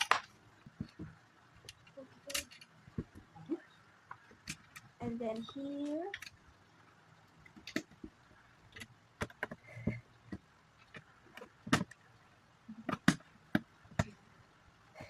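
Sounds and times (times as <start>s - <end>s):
plastic bricks clicking together: 0.0s - 3.3s.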